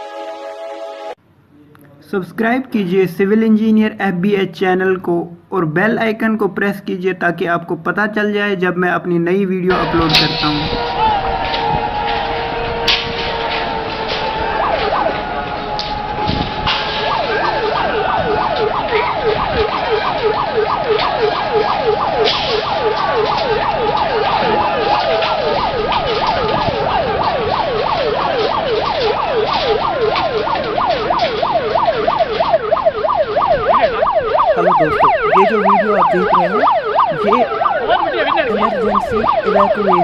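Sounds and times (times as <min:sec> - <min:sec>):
evacuation siren yelping: 0:09.7 - 0:40.0
second siren sweep: 0:09.7 - 0:40.0.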